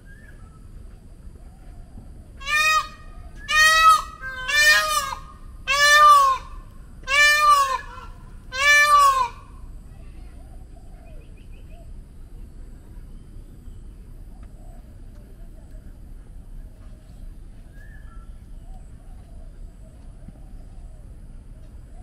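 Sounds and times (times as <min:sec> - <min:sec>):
large bird calling: 0:02.3 - 0:09.6.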